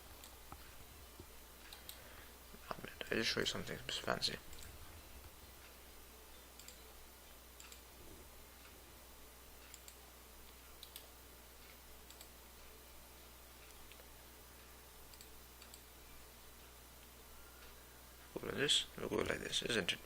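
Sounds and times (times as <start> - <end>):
low room hum: 0.0 - 20.0
computer mouse clicks: 1.6 - 2.0, 6.6 - 6.8, 7.6 - 7.9, 9.6 - 12.3, 15.1 - 15.9.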